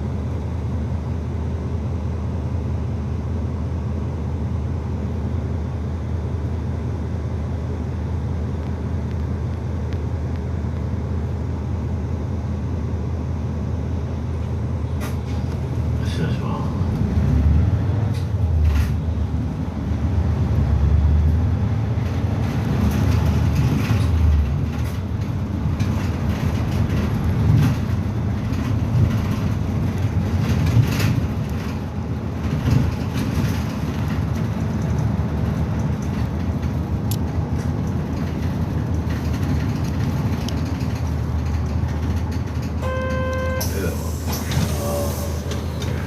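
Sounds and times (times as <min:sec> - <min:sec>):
bus engine and road rumble: 0:00.0 - 0:46.0
body rattles and knocks: 0:22.0 - 0:42.8.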